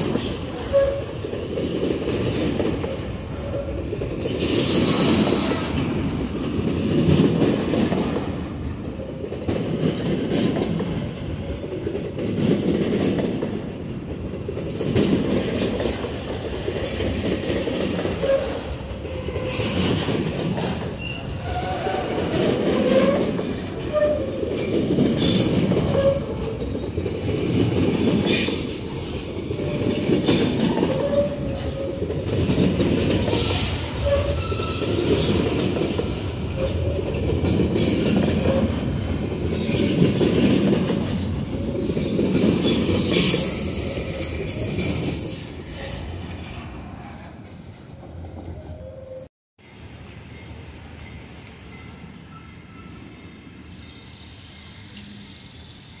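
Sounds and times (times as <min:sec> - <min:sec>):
train wheels rumbling on rails: 0:00.0 - 0:48.8
railcar clanks: 0:00.0 - 0:56.0
short wheel squeals: 0:20.2 - 0:22.0, 0:34.0 - 0:35.0.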